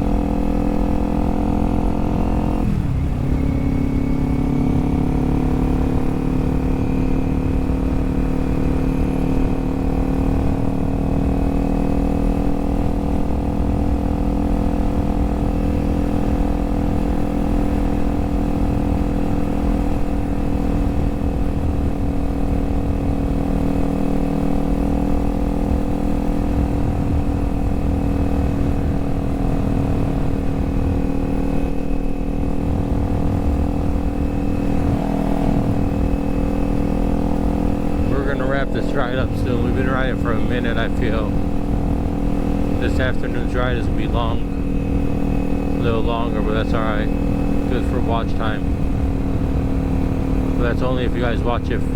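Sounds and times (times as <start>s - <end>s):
motorcycle engine cruising: 0.0s - 51.9s.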